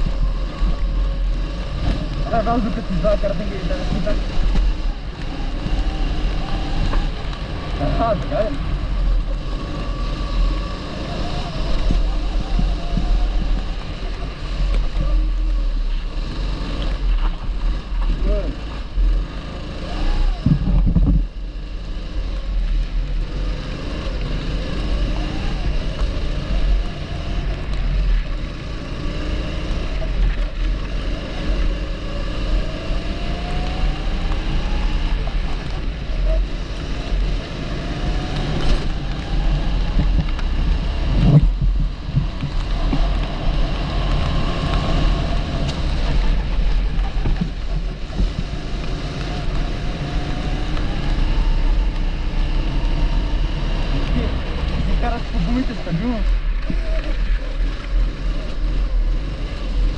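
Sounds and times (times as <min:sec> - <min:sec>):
kart engine revving: 0:00.0 - 0:59.9
wind on microphone: 0:19.9 - 0:21.5, 0:37.8 - 0:59.9.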